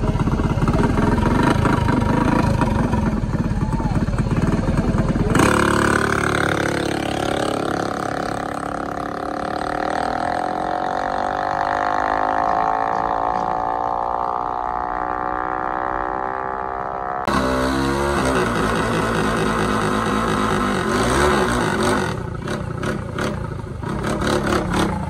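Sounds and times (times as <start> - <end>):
vehicle engine running: 0.0 - 11.1.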